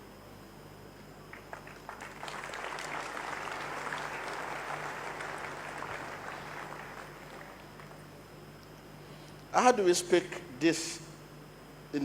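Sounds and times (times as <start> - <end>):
congregation clapping: 1.3 - 8.3.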